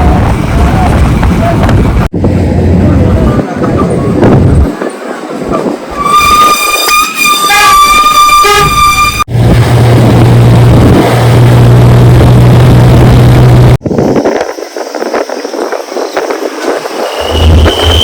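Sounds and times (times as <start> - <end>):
vehicle horn: 6.0 - 9.3
vehicle running noise: 9.1 - 13.9.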